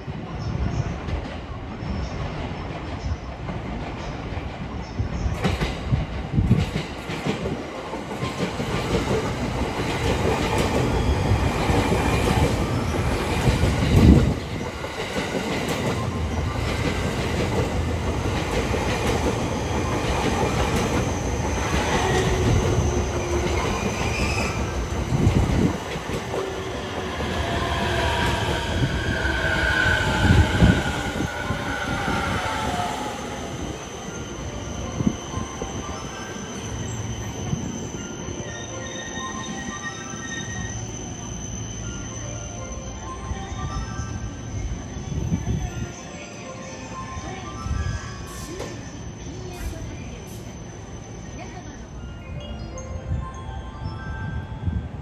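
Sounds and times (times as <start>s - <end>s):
train wheels rumbling on rails: 0.0s - 42.4s
train wheels squealing: 8.1s - 54.8s.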